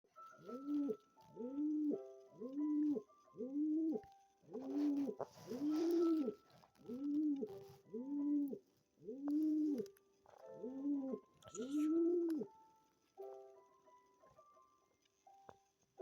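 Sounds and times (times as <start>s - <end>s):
pigeon cooing: 0.4s - 12.5s.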